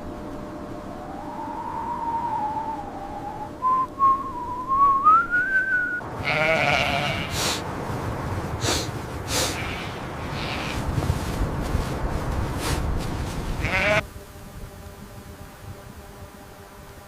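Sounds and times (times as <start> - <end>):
wavering whistle-like tone: 0.6 - 6.0
sheep bleating: 6.2 - 7.5, 9.4 - 10.9, 13.6 - 14.0.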